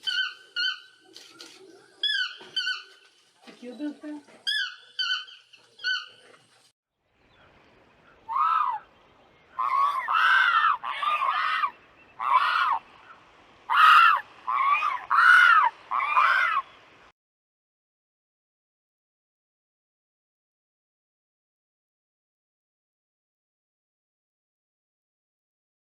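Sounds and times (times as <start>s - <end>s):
animal calls rising and falling: 8.2s - 8.9s, 9.6s - 16.7s.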